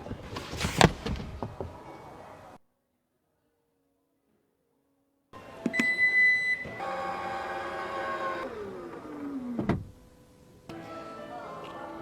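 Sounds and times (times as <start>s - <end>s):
motor stopping click: 5.6s - 11.8s
short high beep: 5.7s - 6.8s
small electric motor whirring: 6.6s - 11.1s.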